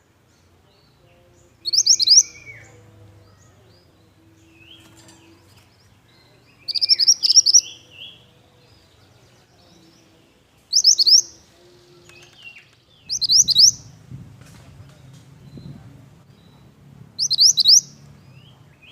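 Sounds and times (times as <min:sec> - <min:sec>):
quiet bird calls: 0:00.0 - 0:14.0, 0:14.9 - 0:18.9
bird chirping rapidly: 0:01.6 - 0:02.6, 0:06.6 - 0:07.9, 0:10.7 - 0:11.4, 0:13.0 - 0:13.9, 0:16.4 - 0:18.9.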